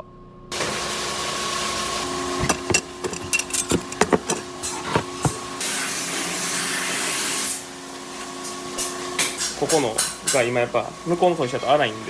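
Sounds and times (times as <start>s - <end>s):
workshop machinery hum: 0.0s - 12.0s.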